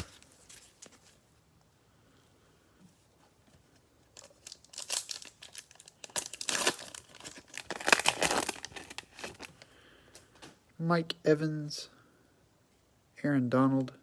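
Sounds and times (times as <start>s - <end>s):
cellophane wrapper crinkling and tearing: 4.1s - 9.6s.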